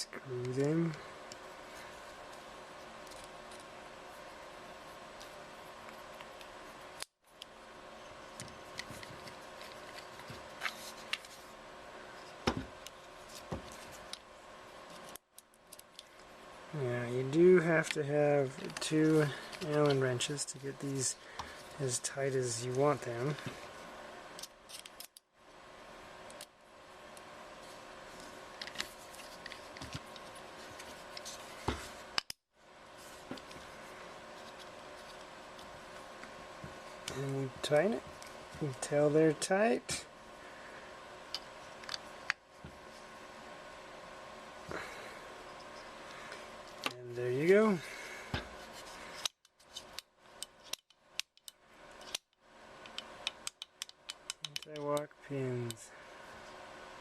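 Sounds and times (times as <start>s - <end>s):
faint steady hum: 0.0s - 57.0s
small metal parts clicking: 52.9s - 54.8s.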